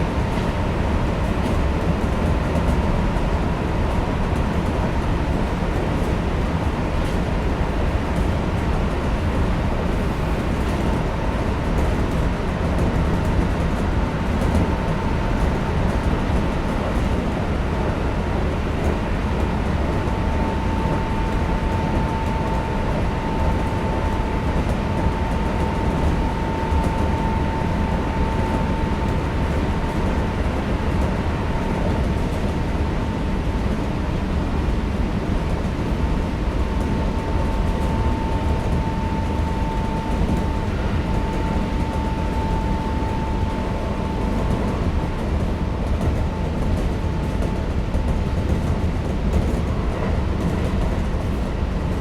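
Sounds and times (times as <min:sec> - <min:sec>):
train wheels rumbling on rail: 0:00.0 - 0:52.0
thin high whine: 0:36.5 - 0:47.0.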